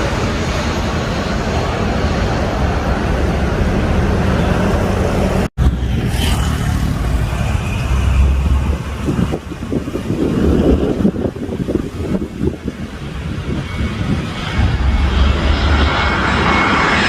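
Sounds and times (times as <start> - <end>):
high engine whine: 0.0 - 17.0
jet engine rumble: 0.0 - 17.0
wind buffeting microphone: 7.8 - 17.0.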